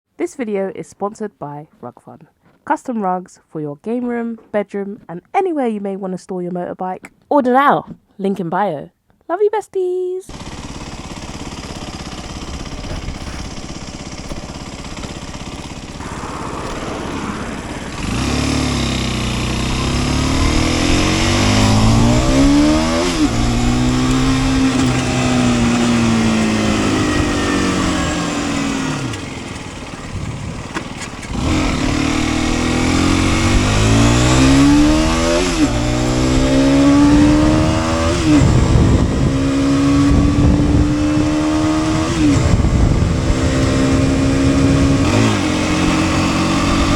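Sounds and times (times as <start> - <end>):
motorcycle engine accelerating: 10.3 - 46.9.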